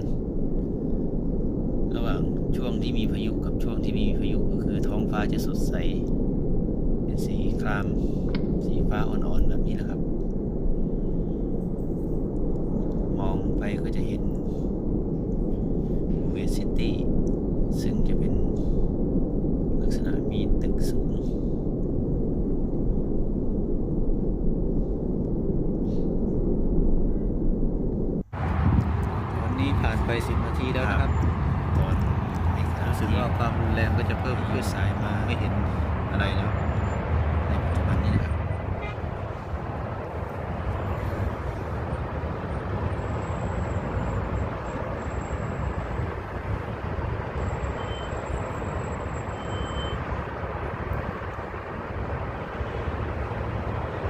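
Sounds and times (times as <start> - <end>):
wind buffeting microphone: 0.0 - 54.0
road traffic: 28.2 - 54.0.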